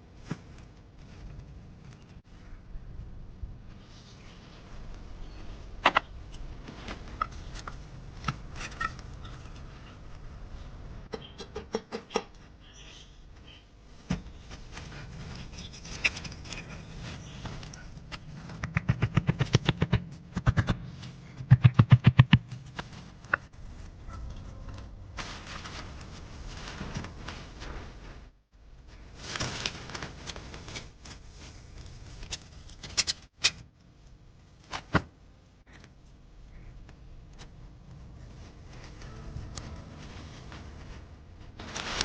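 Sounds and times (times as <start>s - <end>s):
rapid knocking: 18.5s - 20.8s.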